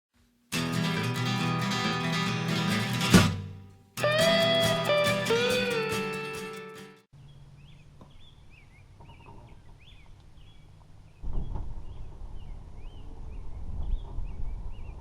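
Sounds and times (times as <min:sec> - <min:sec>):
outdoor background noise: 0:07.1 - 0:15.0
small birds chirping: 0:07.2 - 0:15.0.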